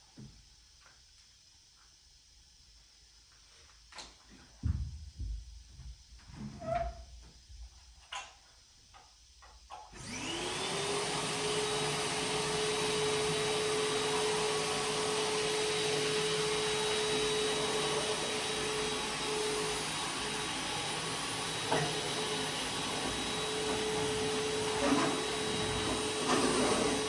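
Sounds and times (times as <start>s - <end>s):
vacuum cleaner motor whine: 9.9s - 27.0s.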